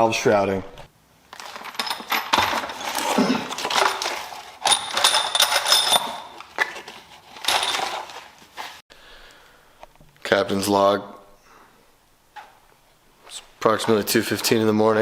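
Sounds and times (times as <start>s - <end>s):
metal tools clinking: 1.3s - 8.2s.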